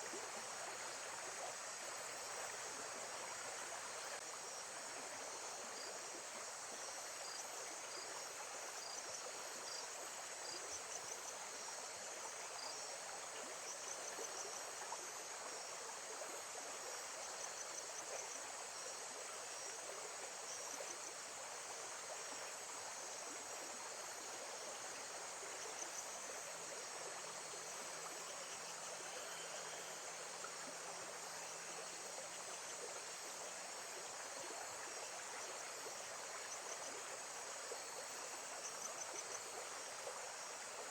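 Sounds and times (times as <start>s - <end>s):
steady water sound: 0.0s - 40.9s
insects chirping and trilling: 4.2s - 14.6s, 17.2s - 40.9s.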